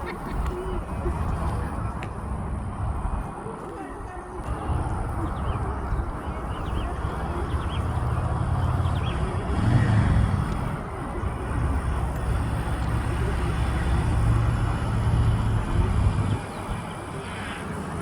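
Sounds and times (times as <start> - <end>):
motorcycle engine running: 4.5 - 18.0.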